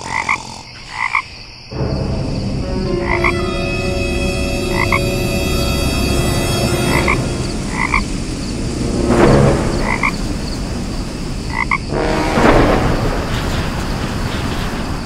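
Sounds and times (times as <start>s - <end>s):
frog croaking: 0.0s - 3.6s, 4.6s - 5.4s, 6.5s - 8.7s, 9.5s - 13.1s.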